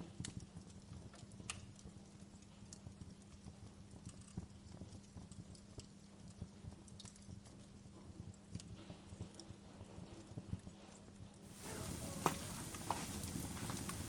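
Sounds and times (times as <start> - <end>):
campfire crackling: 0.1 - 7.6, 11.5 - 14.0
hiss of flame: 11.5 - 14.0.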